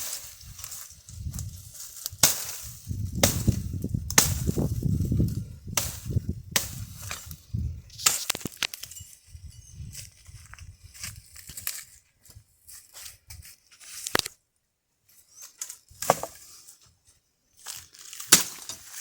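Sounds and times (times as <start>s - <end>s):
firewood cracking: 0.0s - 8.9s, 17.7s - 19.0s
branches rustling: 0.0s - 14.4s, 17.5s - 19.0s.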